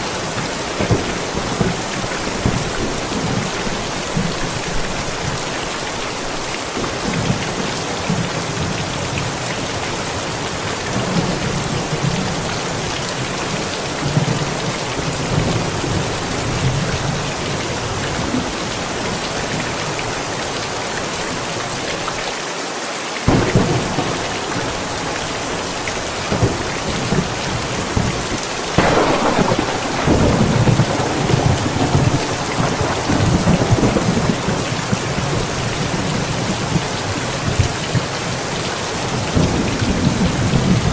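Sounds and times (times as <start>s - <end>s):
sharp thunderclap: 0.0s - 4.9s, 23.3s - 38.1s
thunder rumbling: 0.0s - 5.9s, 23.3s - 40.9s
heavy rain: 0.0s - 40.9s.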